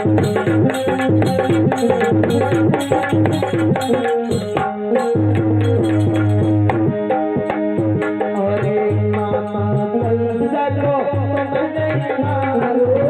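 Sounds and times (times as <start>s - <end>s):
melody of held notes: 0.0s - 10.0s
tabla playing a rhythm: 0.0s - 13.0s.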